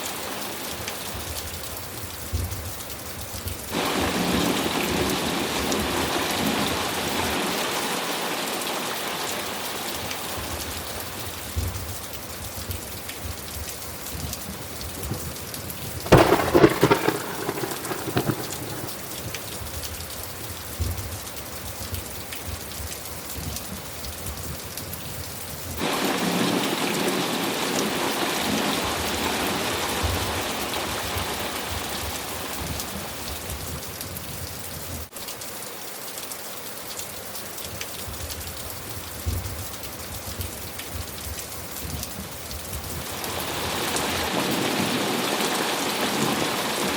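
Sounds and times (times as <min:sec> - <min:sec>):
steady rain: 0:00.0 - 0:46.9
thunder clap rumbling: 0:03.7 - 0:07.3, 0:16.0 - 0:19.9
surge of storm noise: 0:03.7 - 0:08.8, 0:16.0 - 0:19.8, 0:25.8 - 0:33.6, 0:42.9 - 0:46.9.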